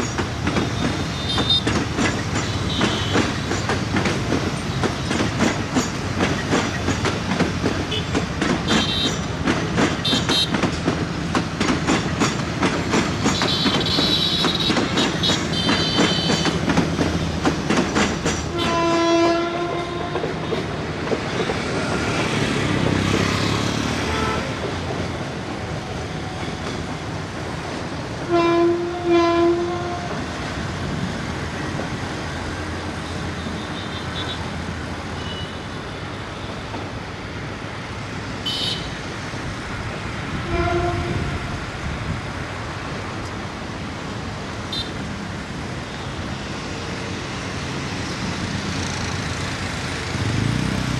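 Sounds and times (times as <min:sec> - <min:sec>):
wheels clickety-clack: 0:00.0 - 0:28.3, 0:45.5 - 0:50.9
train rumbling on track: 0:00.0 - 0:50.9
train horn blasts: 0:18.5 - 0:20.6, 0:24.0 - 0:24.5, 0:28.3 - 0:30.2, 0:40.4 - 0:41.5.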